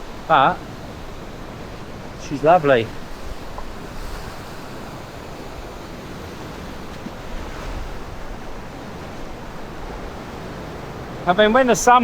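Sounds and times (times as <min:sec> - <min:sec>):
waves washing onto sand: 0:00.0 - 0:12.0
wind rumbling on microphone: 0:00.0 - 0:12.0.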